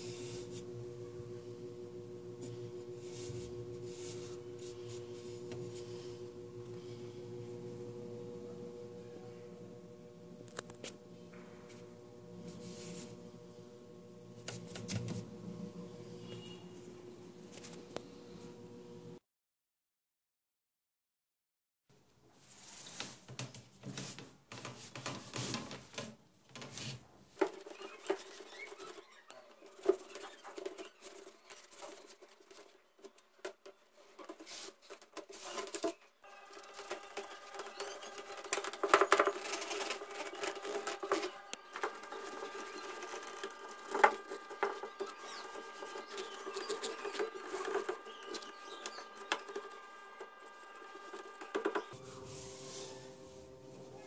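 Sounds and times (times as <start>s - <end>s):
small motor running: 0.0s - 19.2s, 27.4s - 32.7s, 35.4s - 53.6s
taps and scrapes: 14.4s - 15.2s, 36.6s - 52.0s.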